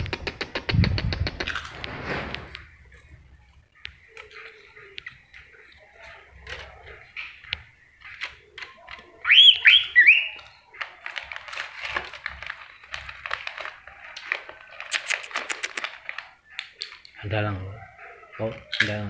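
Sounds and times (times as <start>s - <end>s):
short bird chips: 3.8s - 17.2s
bird whistled notes: 9.2s - 10.4s.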